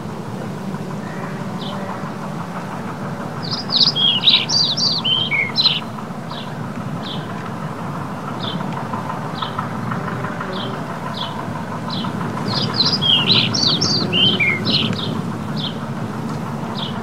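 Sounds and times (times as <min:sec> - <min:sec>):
steady background rumble: 0:00.0 - 0:17.0
small bird chirping: 0:03.4 - 0:07.3, 0:10.5 - 0:15.8.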